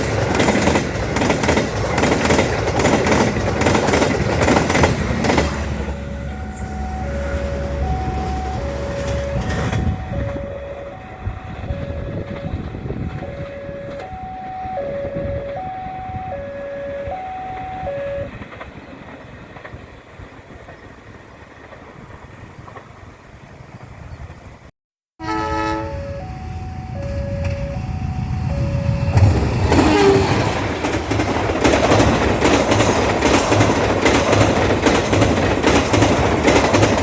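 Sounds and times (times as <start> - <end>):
train rumbling past: 0.0 - 37.0
two-tone warning alarm: 4.6 - 18.4, 25.2 - 30.4.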